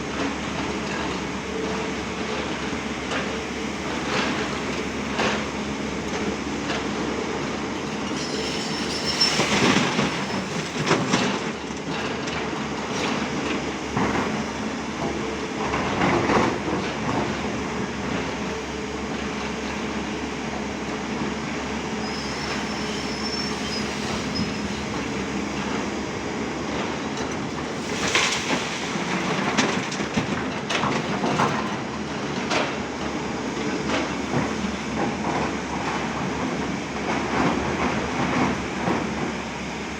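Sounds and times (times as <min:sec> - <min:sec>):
heavy diesel machinery running: 0:00.0 - 0:39.9
high-pitched metallic squeals: 0:08.1 - 0:10.6, 0:22.0 - 0:25.0.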